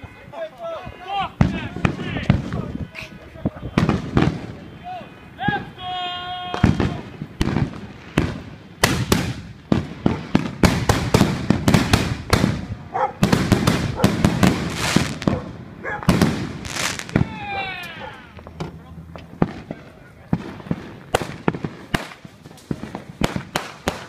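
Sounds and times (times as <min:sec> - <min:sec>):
fireworks banging and crackling: 0:00.9 - 0:24.0
firework whistling: 0:13.3 - 0:18.4.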